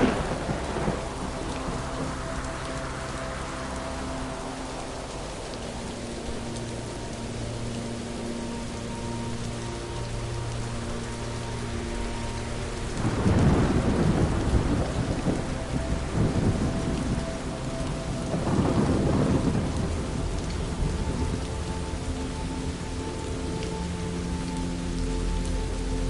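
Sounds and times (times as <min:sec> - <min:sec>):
rumble of thunder: 0:00.0 - 0:03.1, 0:13.0 - 0:22.4
steady rain falling: 0:00.0 - 0:26.0.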